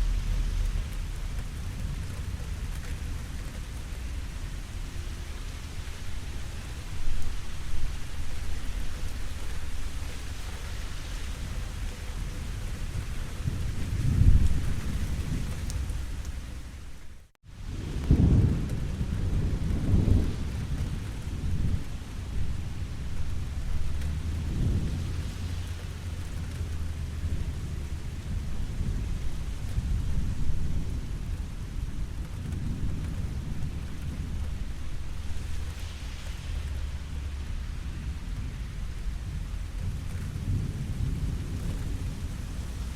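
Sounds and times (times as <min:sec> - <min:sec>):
low rolling thunder: 0:00.0 - 0:42.9
steady rain falling: 0:00.0 - 0:42.9.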